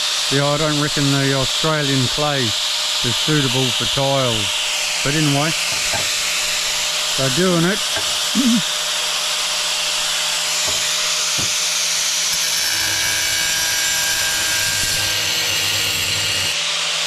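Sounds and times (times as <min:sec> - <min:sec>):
angle grinder running: 0:00.0 - 0:17.0.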